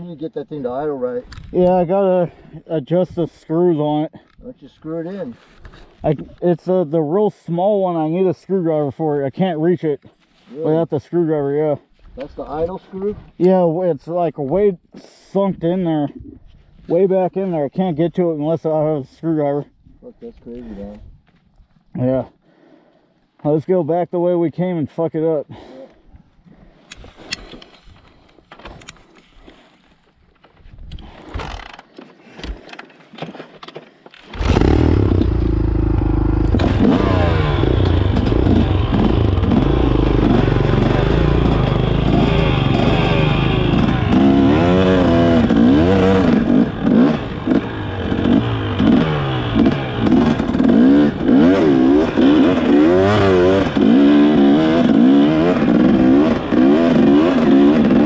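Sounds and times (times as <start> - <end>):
dirt bike engine revving: 34.3 - 58.0.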